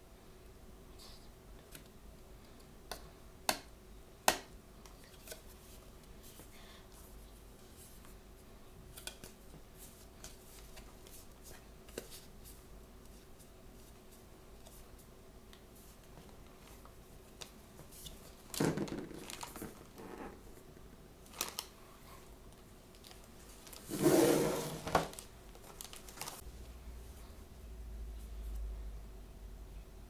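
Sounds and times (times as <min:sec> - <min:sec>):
packaging rustling: 0:18.5 - 0:20.4, 0:21.3 - 0:21.8, 0:22.9 - 0:26.4.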